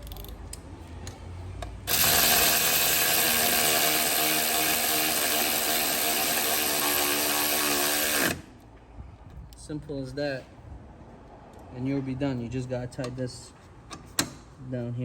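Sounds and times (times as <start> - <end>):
power tool driving fastener: 1.8 - 8.6.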